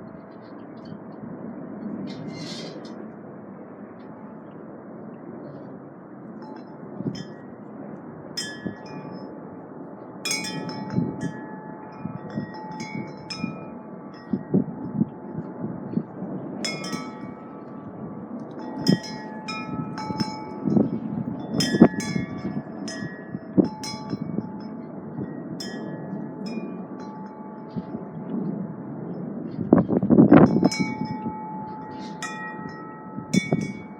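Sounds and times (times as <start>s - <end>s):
wind rumble on microphone: 0.0s - 33.9s
wind chimes ringing: 8.4s - 9.3s, 10.3s - 15.9s, 16.6s - 28.2s, 30.3s - 33.9s.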